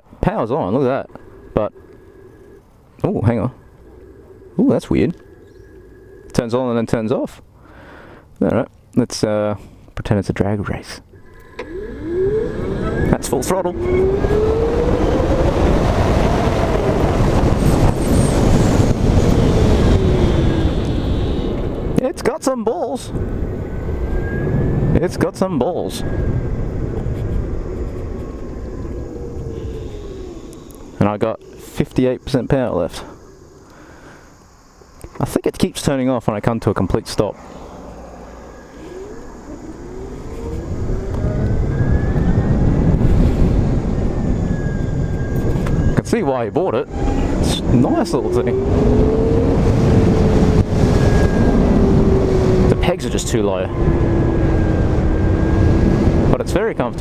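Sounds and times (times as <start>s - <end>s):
electric motorcycle motor whine: 11.2s - 21.9s, 26.0s - 31.6s, 37.4s - 56.8s
wind rush on microphone: 11.6s - 33.0s, 37.8s - 57.0s.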